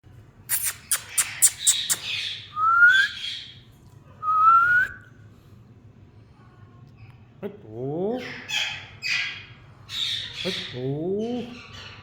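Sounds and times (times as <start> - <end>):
parrot rising whistles: 0.5 - 3.3
parrot calls: 0.5 - 3.6.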